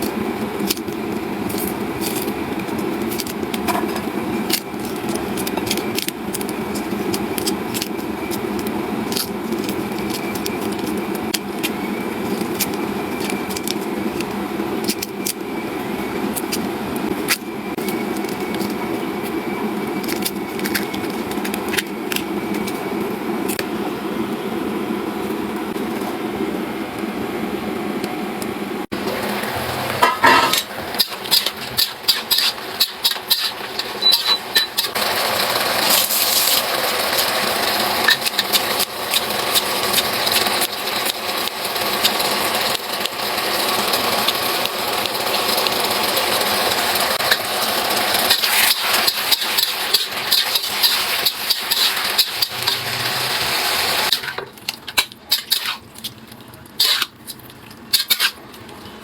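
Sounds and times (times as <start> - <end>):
metal spatula scraping pan: 29.9 - 34.8, 58.0 - 58.4
food sizzling in a wok: 35.0 - 54.4.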